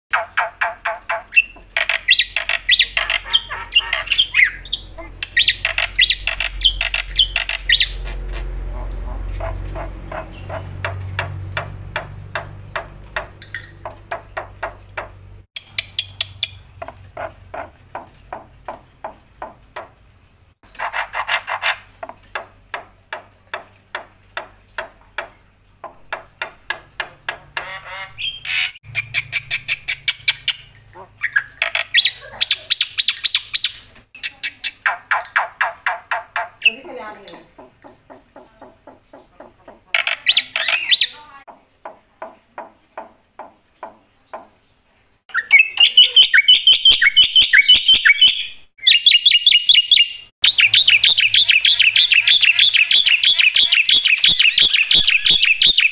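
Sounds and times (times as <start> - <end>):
harsh squawking chatter: 2.0 - 10.8.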